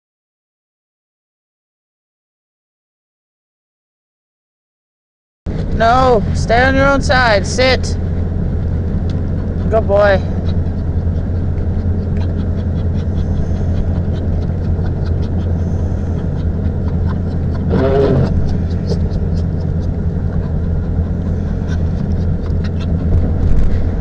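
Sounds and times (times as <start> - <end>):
car engine and road noise: 5.5 - 24.0
dog whining: 5.5 - 24.0
light ticks: 8.9 - 9.4.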